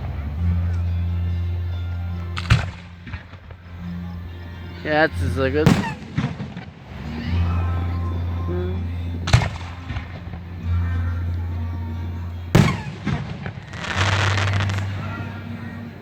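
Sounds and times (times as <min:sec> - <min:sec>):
music with low bass: 0:00.0 - 0:16.0
firework bangs: 0:02.4 - 0:03.6, 0:05.0 - 0:07.8, 0:09.2 - 0:10.4, 0:12.5 - 0:16.0
firework crackling: 0:05.1 - 0:08.4, 0:12.5 - 0:16.0.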